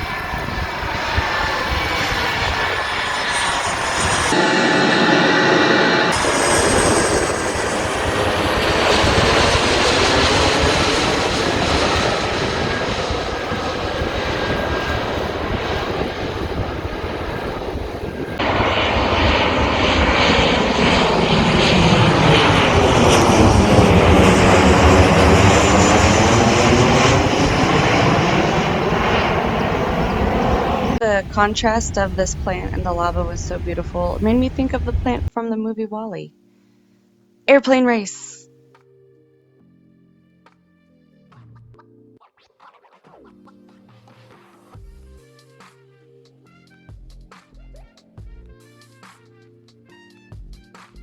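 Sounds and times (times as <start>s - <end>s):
airplane flying overhead: 0.0s - 35.3s.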